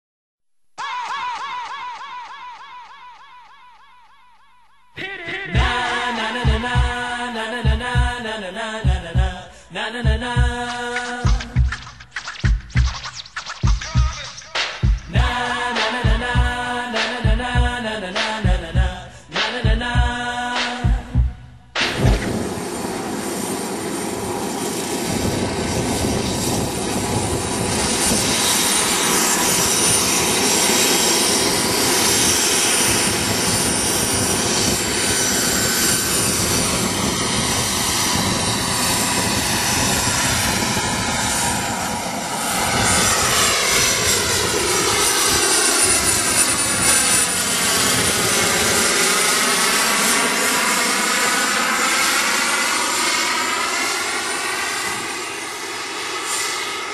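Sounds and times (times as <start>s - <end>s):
model helicopter turbine whine: 21.9s - 56.9s.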